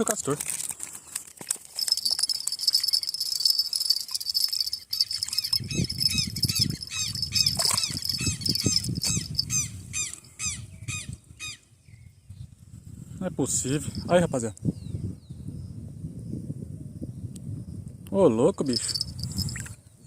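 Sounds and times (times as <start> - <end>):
insects buzzing: 1.8 - 9.6
bird chirping: 1.9 - 10.9.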